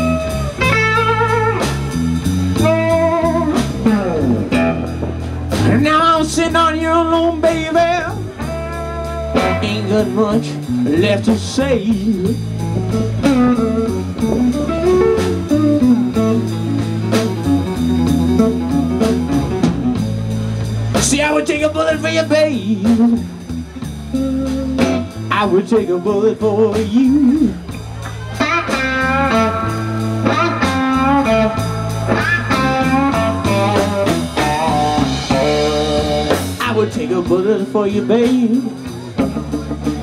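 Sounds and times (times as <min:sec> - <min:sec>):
bass and drums: 0:00.0 - 0:40.0
electric guitar bent notes: 0:00.0 - 0:40.0
person singing: 0:05.6 - 0:12.5, 0:24.2 - 0:27.7, 0:34.4 - 0:39.2
drum strikes: 0:22.6 - 0:25.5.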